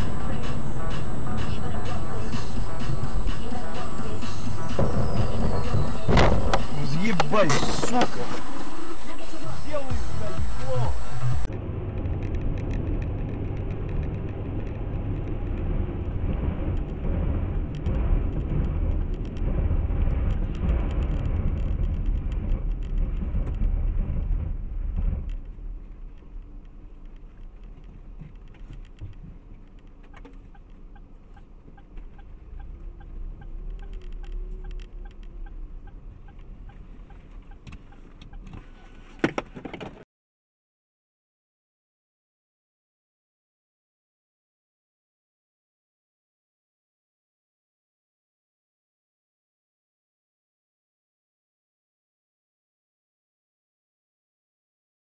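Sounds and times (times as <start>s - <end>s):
car engine and road noise: 0.0s - 40.1s
scattered clicks: 11.4s - 17.0s, 25.2s - 38.6s.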